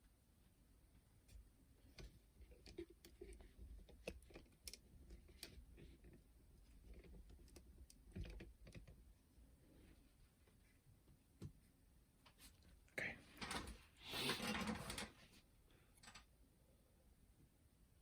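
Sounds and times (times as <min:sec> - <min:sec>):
small clicks and taps of parts: 0:01.3 - 0:09.0, 0:16.0 - 0:16.3.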